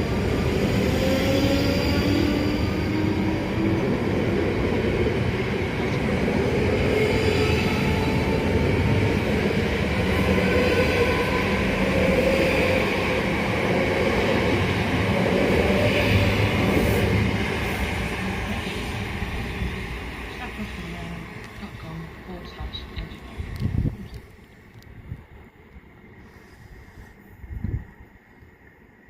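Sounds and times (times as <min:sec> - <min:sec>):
train wheels rumbling on rails: 0:00.0 - 0:28.1
faint train whine: 0:00.0 - 0:29.0.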